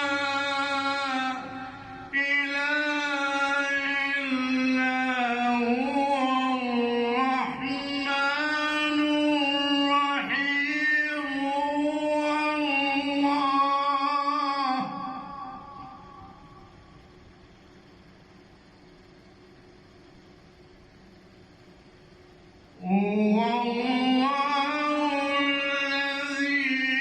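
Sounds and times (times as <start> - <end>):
man chanting melodically: 0.0 - 16.7, 22.8 - 27.0.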